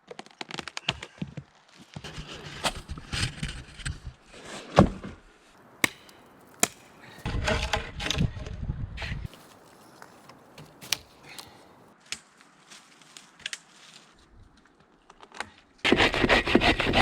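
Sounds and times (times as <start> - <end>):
crunching rustling handling noise: 5.8 - 7.3, 9.3 - 11.9
wood chopping knocks: 5.8 - 7.3, 9.3 - 11.6.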